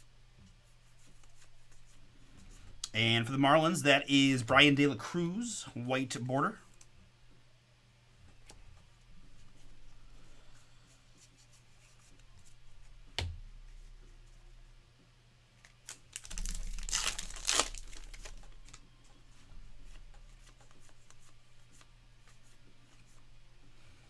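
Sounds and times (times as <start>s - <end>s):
wrapper crinkling tear: 15.6s - 18.8s.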